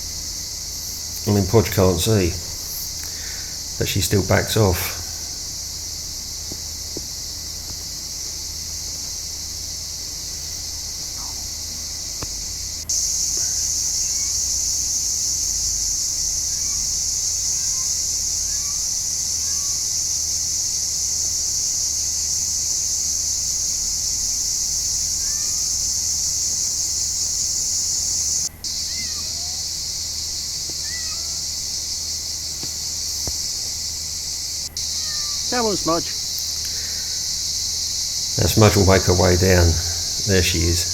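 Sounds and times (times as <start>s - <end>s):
insects buzzing: 0.0s - 40.9s
faint bird chirps: 10.4s - 12.0s, 13.0s - 14.6s, 16.3s - 20.0s, 28.7s - 37.4s.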